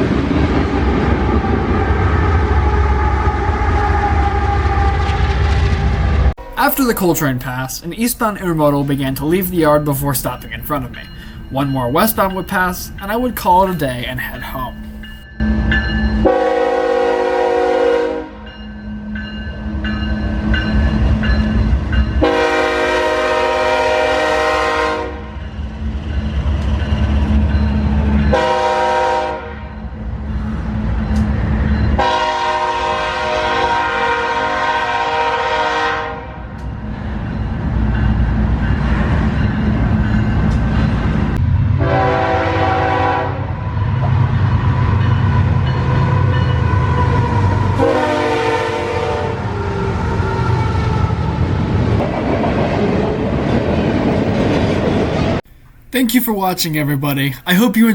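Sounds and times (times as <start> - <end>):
diesel engines rumbling: 6.4 - 15.2
locomotive air horn blowing: 16.2 - 18.4, 22.2 - 25.4, 28.3 - 29.7, 32.0 - 36.4, 41.8 - 43.6, 47.2 - 49.5.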